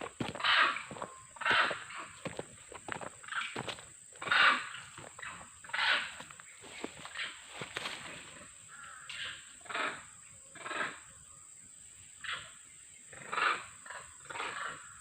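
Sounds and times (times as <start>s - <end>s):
short animal calls: 4.2s - 6.2s.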